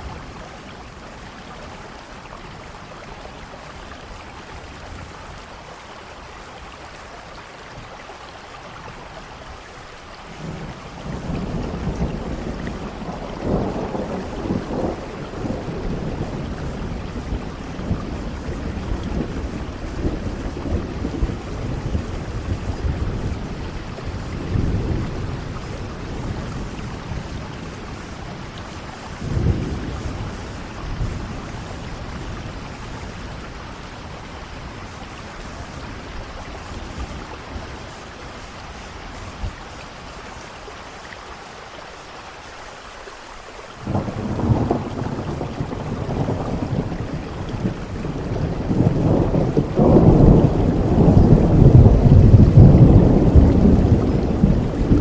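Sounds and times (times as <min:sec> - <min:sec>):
steady rain: 0:00.0 - 0:55.0
rolling thunder: 0:10.4 - 0:40.1, 0:43.8 - 0:55.0.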